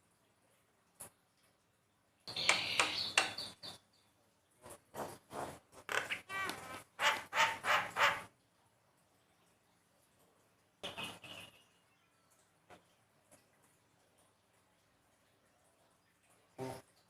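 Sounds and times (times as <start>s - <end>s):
bird harsh rasping calls: 6.0s - 8.3s.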